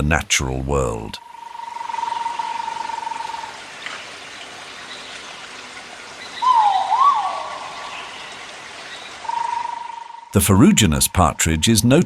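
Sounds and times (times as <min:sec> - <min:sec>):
rushing hiss like running water: 0:01.7 - 0:10.0
swooping whistled bird call: 0:06.2 - 0:08.3, 0:08.9 - 0:10.3.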